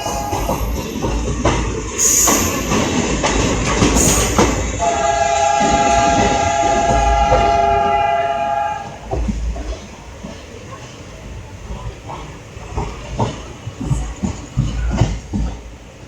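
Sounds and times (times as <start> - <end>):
wheels knocking over rail joints: 0.0 - 8.0
high wheel squeals: 0.0 - 9.1
passenger train clattering past: 0.0 - 16.0
locomotive air horn blast: 4.0 - 9.1.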